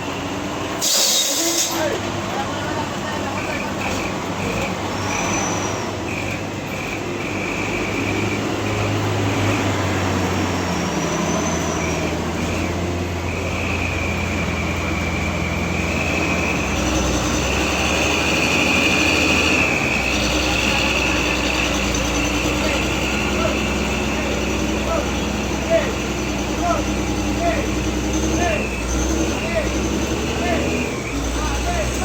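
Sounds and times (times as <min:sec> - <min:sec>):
truck diesel engine labouring: 0:00.0 - 0:32.0
high squealing whine: 0:07.2 - 0:32.0.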